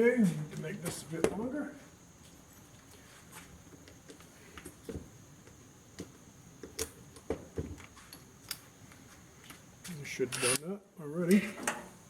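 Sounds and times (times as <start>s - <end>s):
hand tools and metal parts clicking: 10.2s - 10.7s.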